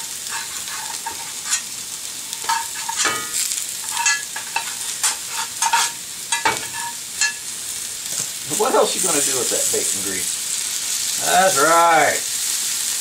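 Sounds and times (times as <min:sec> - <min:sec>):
potatoes sizzling in a skillet: 0:00.0 - 0:13.0
metal utensil scraping a pan: 0:00.2 - 0:01.8, 0:02.4 - 0:07.5.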